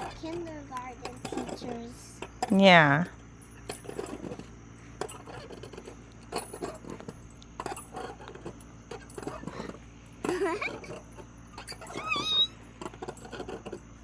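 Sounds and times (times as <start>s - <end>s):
light metallic clinks and rattles: 0.0s - 14.0s
soft voices: 0.1s - 3.1s.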